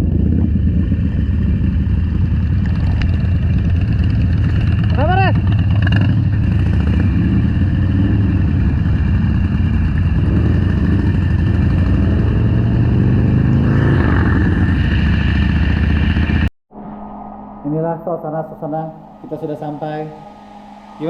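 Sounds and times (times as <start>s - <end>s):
motorcycle engine running: 0.0s - 16.5s
wind and road noise: 0.0s - 17.7s.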